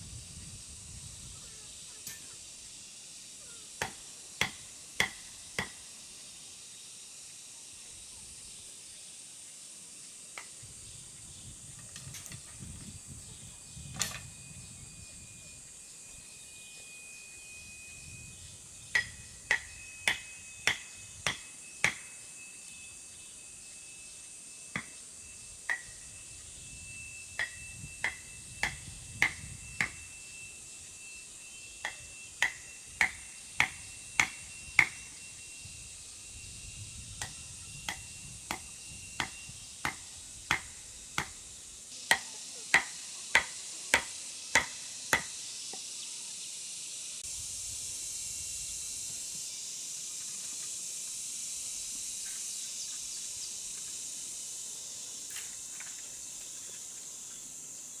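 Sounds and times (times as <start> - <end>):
steady high hiss: 0.0 - 58.0
sharp metallic ringing strikes: 18.8 - 30.3.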